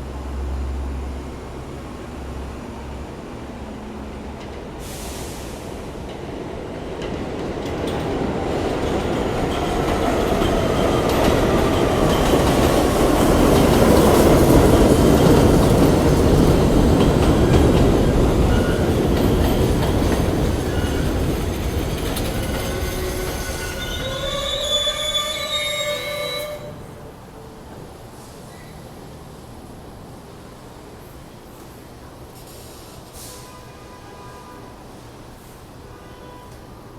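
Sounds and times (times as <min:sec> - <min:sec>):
train wheels rumbling on rail: 0:00.0 - 0:36.9
high-pitched wheel squeal: 0:20.6 - 0:21.4, 0:22.2 - 0:26.9.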